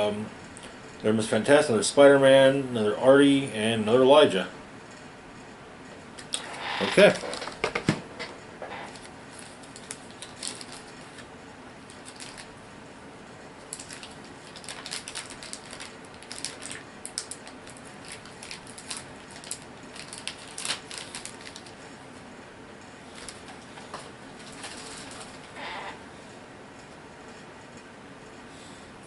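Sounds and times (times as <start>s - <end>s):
packaging crinkling: 6.2s - 7.7s, 8.9s - 11.3s, 11.9s - 12.5s, 13.7s - 21.8s, 23.2s - 25.6s.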